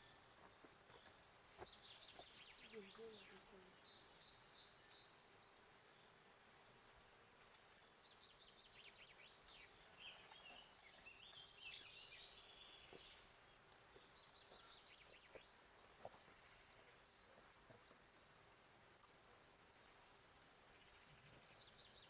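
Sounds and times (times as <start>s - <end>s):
faint high hiss or insect drone: 0.0s - 22.0s
faint bird chirps: 7.2s - 18.0s.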